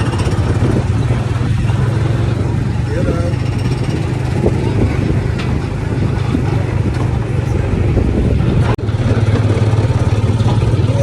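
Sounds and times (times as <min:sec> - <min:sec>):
small gasoline engine running: 0:00.0 - 0:06.7, 0:08.8 - 0:11.0.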